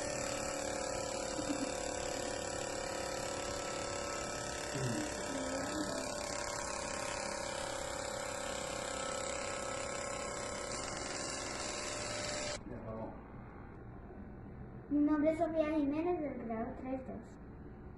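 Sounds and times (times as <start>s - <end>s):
small vacuum motor buzzing: 0.0s - 12.6s.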